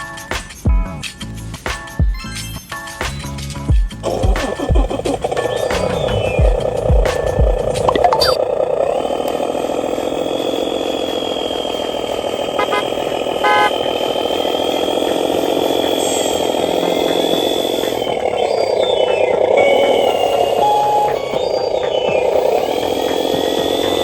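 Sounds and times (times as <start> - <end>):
model truck motor hum: 4.0 - 24.0
short horn beeps: 12.6 - 13.8.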